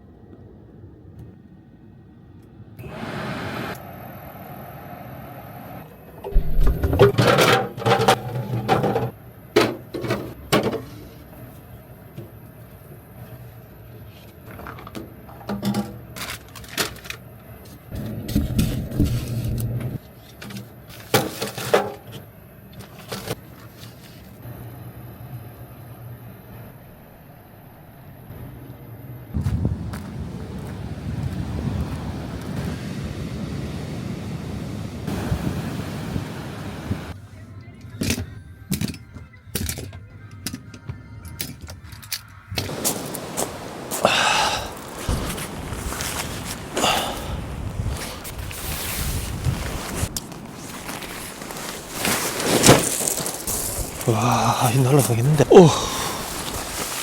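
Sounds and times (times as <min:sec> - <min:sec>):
low rumble: 0:06.3 - 0:07.2
rattling clatters and knocks: 0:06.3 - 0:10.9
faint music: 0:37.1 - 0:42.7
wind buffeting microphone: 0:42.7 - 0:50.7.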